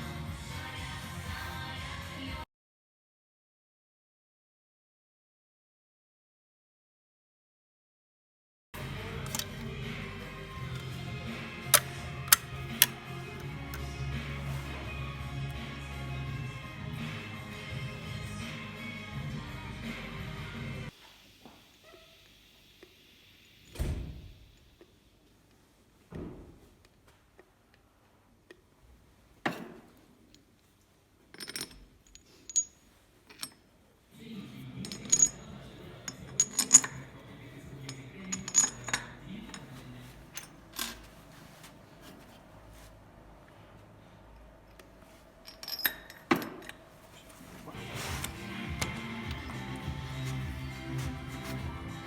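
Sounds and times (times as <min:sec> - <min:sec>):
metal parts clinking: 0:09.2 - 0:09.6, 0:31.3 - 0:33.7, 0:34.8 - 0:37.1, 0:37.8 - 0:41.2, 0:45.4 - 0:50.4.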